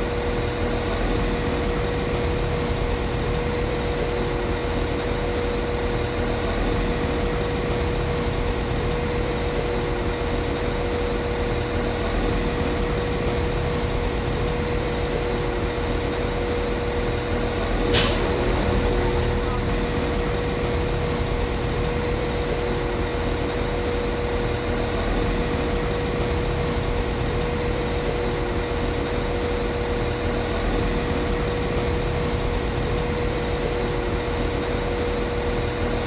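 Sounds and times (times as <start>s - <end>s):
train diesel engine idling: 11.9s - 24.0s
sharp click: 17.9s - 18.4s.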